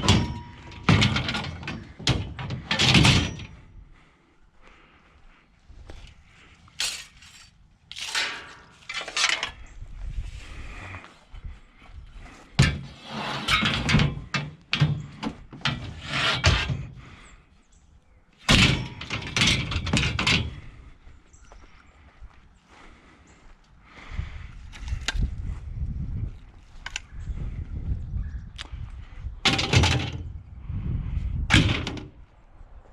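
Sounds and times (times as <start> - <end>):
scrap metal clanking and scraping: 0.0 - 3.7, 6.8 - 9.7, 12.5 - 17.2, 18.4 - 20.8, 29.4 - 30.3, 31.5 - 32.1.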